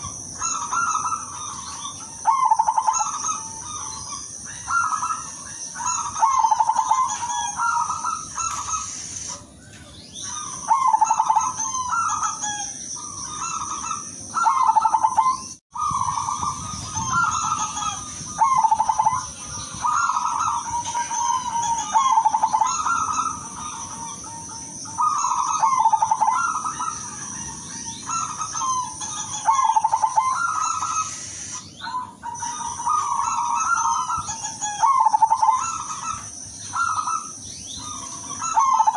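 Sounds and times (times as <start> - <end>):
dove cooing: 0.0 - 38.9
steady high hiss: 7.8 - 9.6, 16.2 - 31.8.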